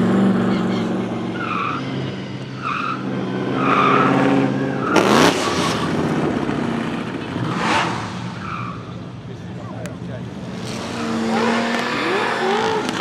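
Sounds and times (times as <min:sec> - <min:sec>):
tyres squealing and skidding: 0:00.2 - 0:06.1, 0:07.4 - 0:09.1, 0:10.4 - 0:13.0
car engine revving hard: 0:03.1 - 0:08.4, 0:10.3 - 0:13.0.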